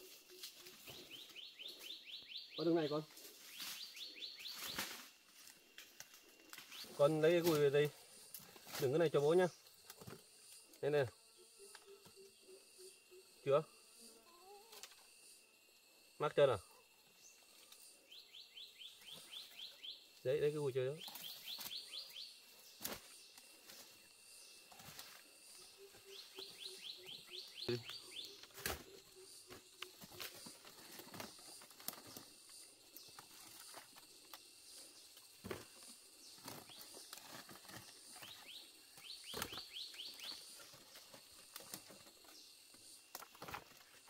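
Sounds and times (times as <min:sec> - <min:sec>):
bird singing high chirps: 0:00.9 - 0:04.8, 0:18.1 - 0:20.1, 0:20.9 - 0:22.4, 0:25.6 - 0:29.3, 0:38.2 - 0:40.5
rustling: 0:28.2 - 0:42.5.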